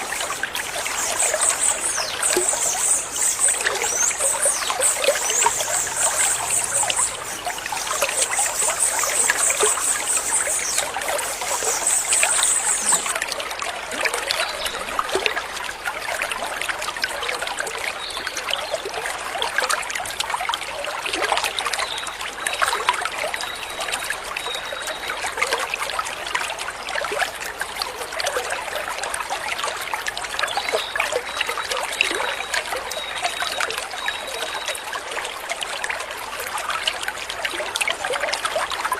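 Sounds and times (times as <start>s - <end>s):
stream water trickling: 0.0s - 38.9s
high pulsing trill: 2.4s - 13.1s.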